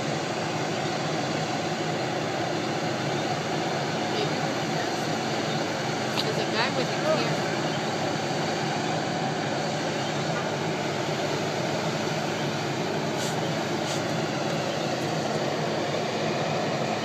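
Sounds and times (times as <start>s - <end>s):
vehicle rumble and road noise: 0.0s - 17.0s.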